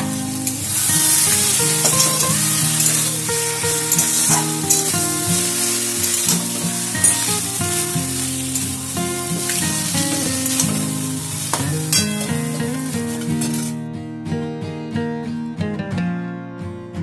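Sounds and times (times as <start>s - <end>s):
food sizzling in a pan: 0.0s - 13.8s
instrumental music: 0.0s - 17.0s
spatula scraping a pan: 0.7s - 13.7s.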